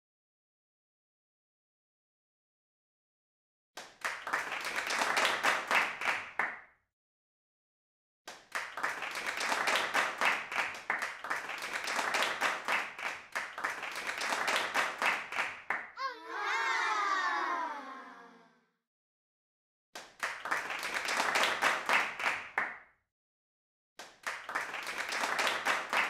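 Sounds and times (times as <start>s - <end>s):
hands clapping: 3.8s - 6.7s, 8.3s - 15.9s, 20.0s - 22.9s, 24.0s - 26.0s.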